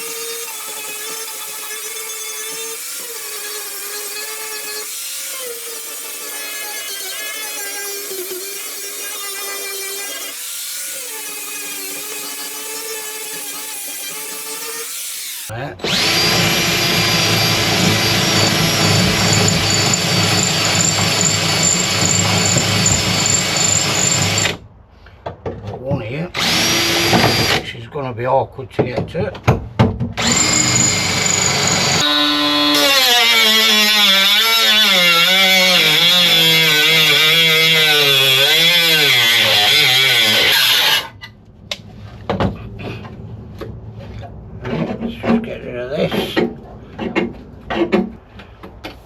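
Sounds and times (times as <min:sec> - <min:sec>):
power tool whining and grinding: 0:00.0 - 0:24.6, 0:26.4 - 0:27.6, 0:30.2 - 0:41.2.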